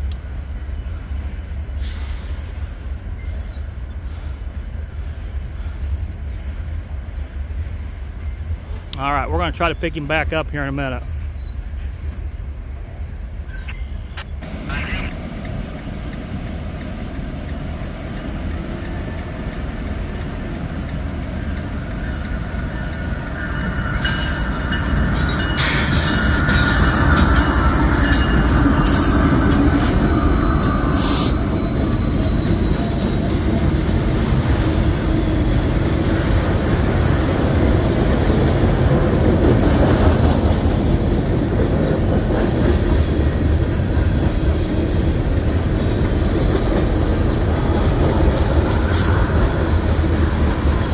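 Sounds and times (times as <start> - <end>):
freight train rumbling past: 0.0 - 50.9
train wheel squeal: 21.4 - 33.7.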